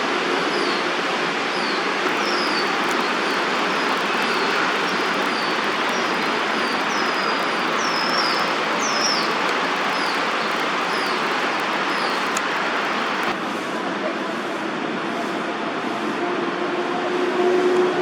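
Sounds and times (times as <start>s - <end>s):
bird chirping: 2.0s - 13.4s
city traffic: 2.0s - 13.4s.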